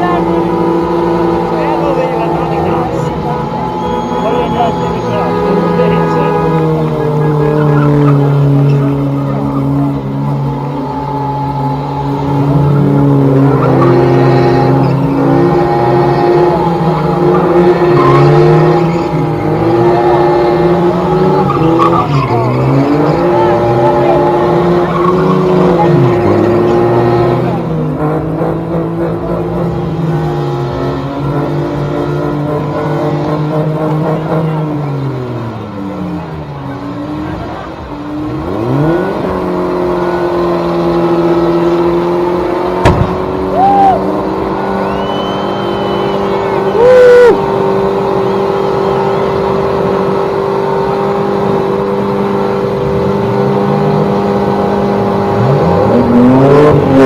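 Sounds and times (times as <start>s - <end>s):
car engine revving hard: 0.0s - 57.0s
tyres squealing: 2.2s - 26.4s
sharp bang: 42.8s - 43.3s.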